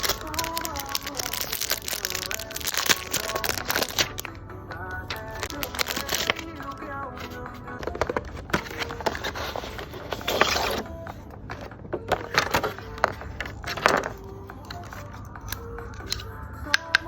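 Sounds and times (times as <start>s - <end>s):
wrapping material crinkling: 0.0s - 4.3s, 5.1s - 10.9s
taps and clicks of handling: 0.0s - 17.0s.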